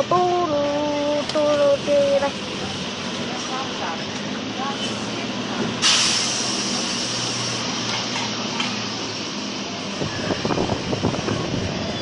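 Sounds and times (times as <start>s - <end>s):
engine hum and rolling noise: 0.0s - 12.0s
hiss: 5.8s - 7.7s.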